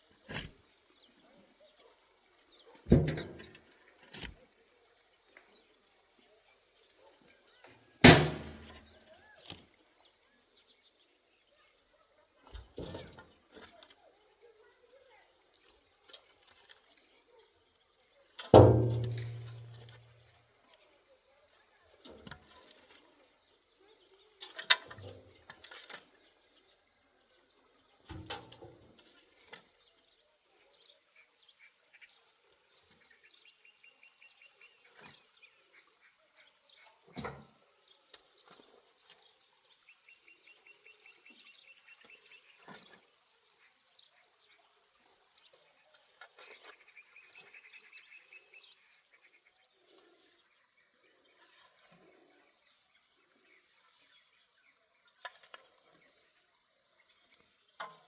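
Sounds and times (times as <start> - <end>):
dull thump: 2.9 - 3.5, 8.0 - 8.9, 18.6 - 20.0.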